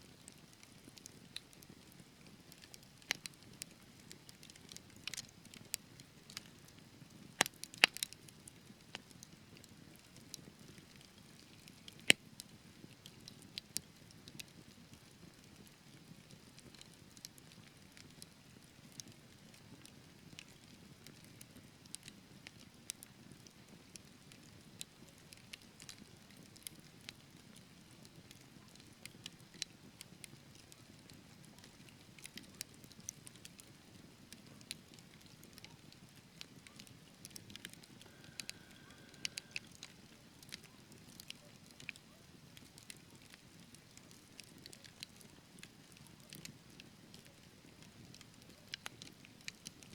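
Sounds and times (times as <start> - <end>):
logs crackling and popping: 0.2 - 49.9
low rumble of flames: 36.2 - 41.2.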